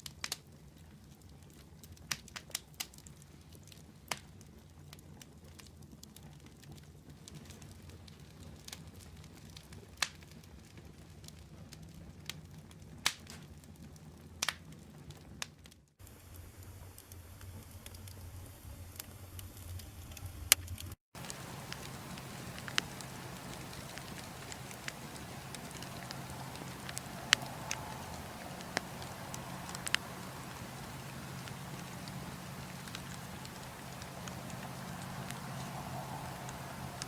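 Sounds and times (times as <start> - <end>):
wood fire crackling: 16.0 - 37.0.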